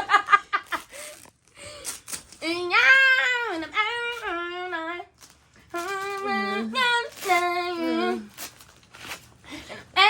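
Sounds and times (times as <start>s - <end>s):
person singing unaccompanied: 5.7s - 8.3s.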